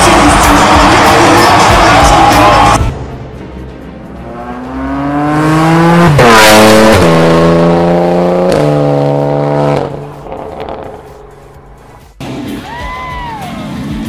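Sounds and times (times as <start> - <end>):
car engine revving: 0.0 - 2.9, 4.1 - 12.4.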